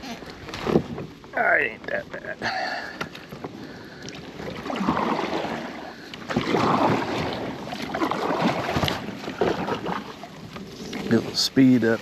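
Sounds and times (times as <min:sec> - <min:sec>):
kayak paddle splashing: 0:02.8 - 0:12.0.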